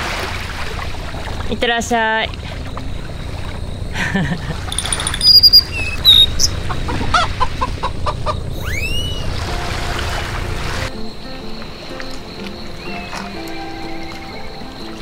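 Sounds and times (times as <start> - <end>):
steady low rumble: 0.4 - 8.6
birds chirping: 1.2 - 9.4, 11.0 - 15.0
swooping bird whistle: 4.7 - 6.6, 8.6 - 9.6, 12.8 - 15.0
bird clucking: 4.7 - 8.5.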